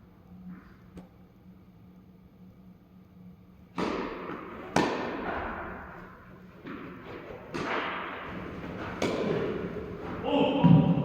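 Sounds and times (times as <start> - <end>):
tennis ball pops with echo: 3.8 - 5.7.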